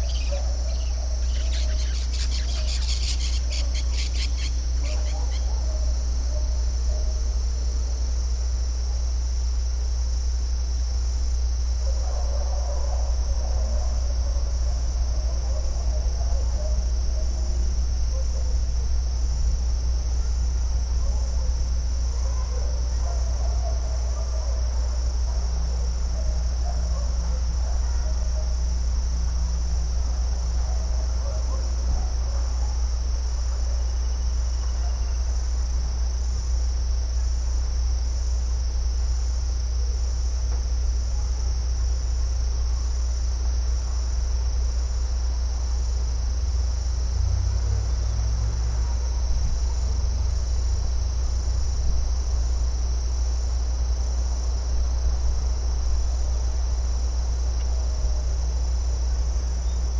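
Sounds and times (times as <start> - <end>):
faint chirps: 0.0 - 5.6
constant low rumble: 0.0 - 59.9
crickets trilling: 0.0 - 59.9.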